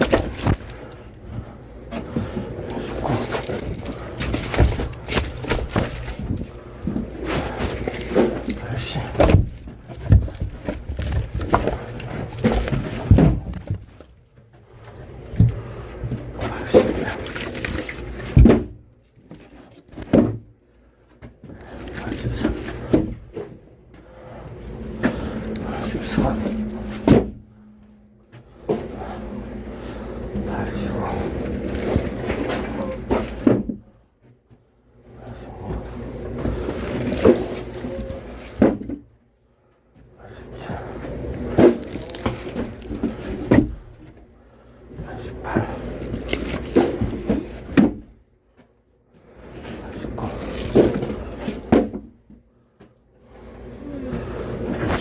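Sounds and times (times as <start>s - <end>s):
handling rustling: 0.0s - 18.6s, 30.3s - 33.6s, 35.6s - 38.8s, 40.6s - 43.9s, 45.3s - 48.0s, 49.8s - 51.7s.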